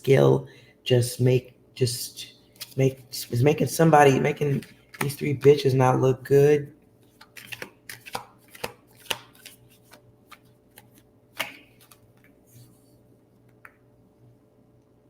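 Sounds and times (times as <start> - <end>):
cards being shuffled: 2.6 - 3.0, 4.4 - 5.7, 7.0 - 13.7.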